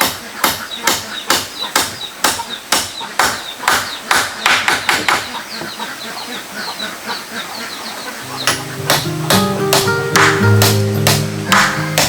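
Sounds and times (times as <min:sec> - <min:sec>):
sharp blows on wood: 0:00.0 - 0:05.3, 0:08.4 - 0:12.0
chicks cheeping: 0:00.1 - 0:09.6.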